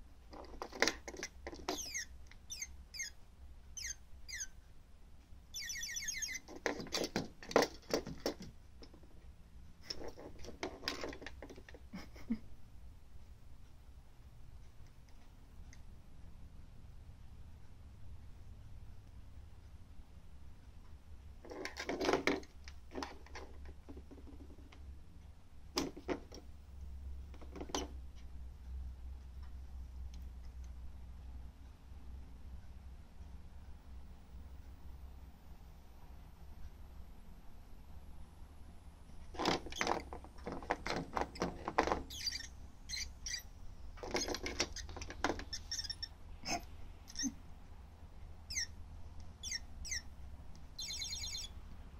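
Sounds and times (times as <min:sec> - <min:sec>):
toy bird chirping: 0:01.6 - 0:04.6, 0:05.5 - 0:06.6, 0:42.1 - 0:43.5, 0:44.3 - 0:46.2, 0:48.5 - 0:48.8, 0:49.4 - 0:50.1, 0:50.7 - 0:51.6.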